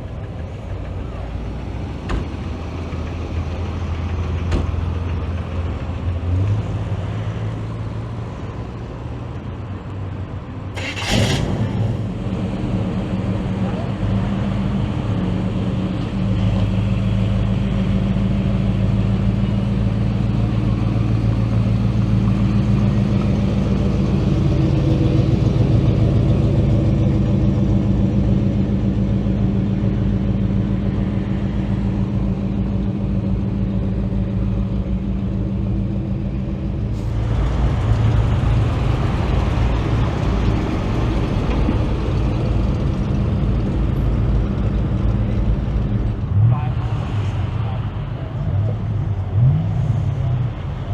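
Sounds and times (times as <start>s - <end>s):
car engine idling: 0.0s - 50.9s
rush of noise: 36.1s - 50.9s.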